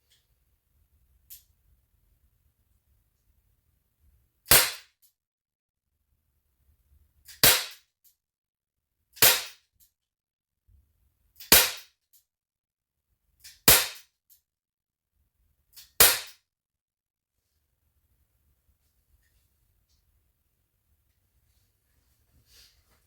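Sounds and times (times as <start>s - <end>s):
air pistol shots: 4.5s - 4.9s, 7.4s - 7.8s, 9.2s - 9.6s, 11.5s - 11.9s, 13.7s - 14.0s, 16.0s - 16.4s.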